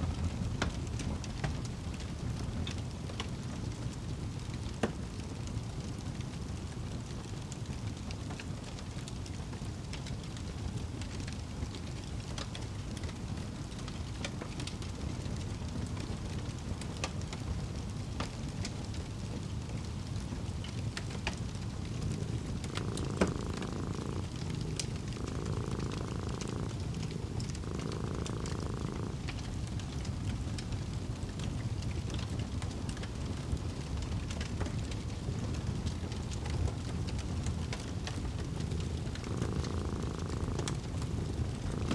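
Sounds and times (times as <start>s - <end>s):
cat purring: 5.7s - 41.9s
fireplace crackling: 13.0s - 41.9s.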